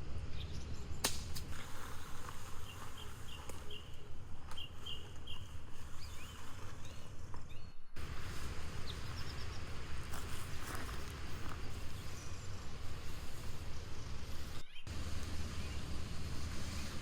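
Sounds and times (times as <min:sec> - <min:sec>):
small birds chirping: 0:00.1 - 0:17.0
steady low rumble: 0:08.0 - 0:17.0.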